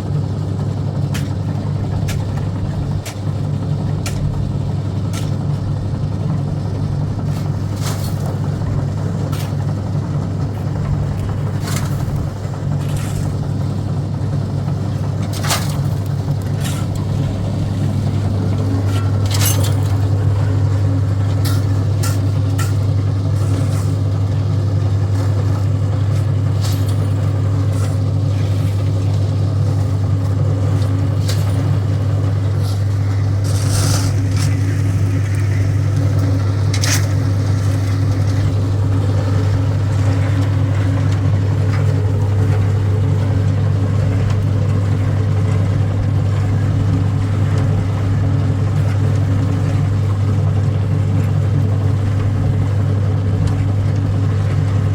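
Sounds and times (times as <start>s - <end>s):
engine running: 0.0s - 54.9s
sharp knocks and clanks: 4.0s - 5.7s.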